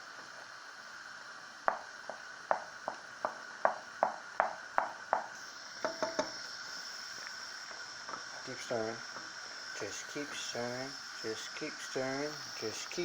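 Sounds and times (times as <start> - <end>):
spoon knocking against pot: 2.5 - 6.4.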